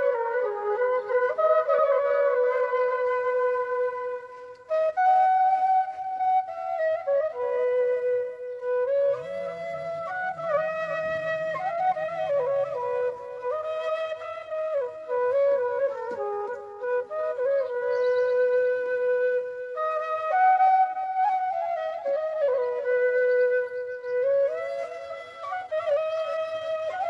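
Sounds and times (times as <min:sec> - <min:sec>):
bamboo flute melody: 0:00.0 - 0:27.0.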